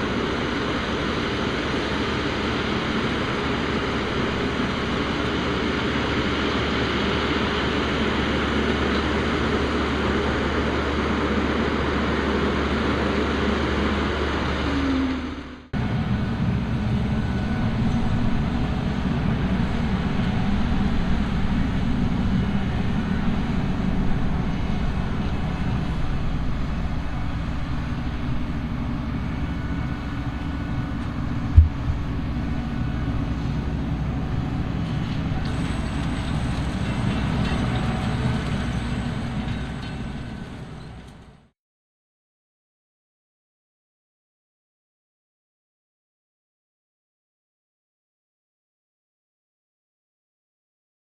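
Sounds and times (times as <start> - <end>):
heavy harvesting machinery running: 0.0 - 41.5
sharp thump: 31.5 - 32.1.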